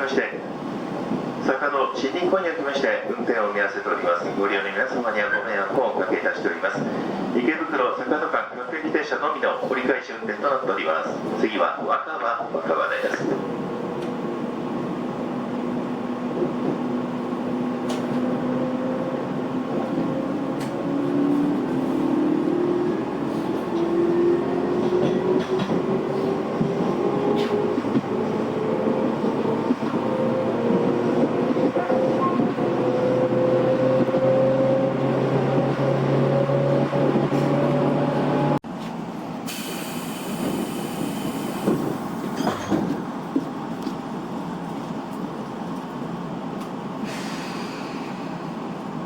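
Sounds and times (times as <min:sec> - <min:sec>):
train running noise: 0:12.5 - 0:49.0.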